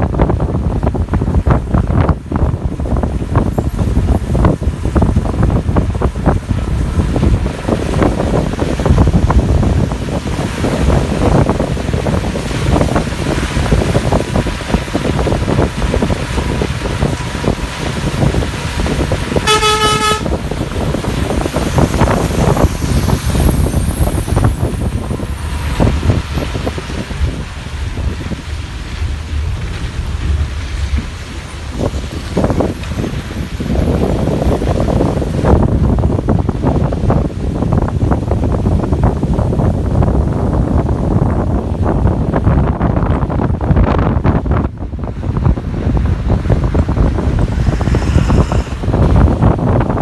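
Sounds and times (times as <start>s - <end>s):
bus engine and road rumble: 0.0s - 50.0s
wind buffeting microphone: 0.0s - 50.0s
short horn toot: 19.4s - 20.4s, 47.6s - 49.3s.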